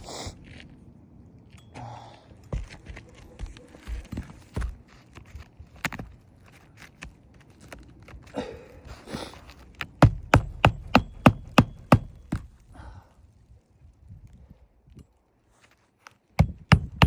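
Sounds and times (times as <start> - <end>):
hammer blows on shingle roof: 9.8 - 12.6, 16.4 - 17.0.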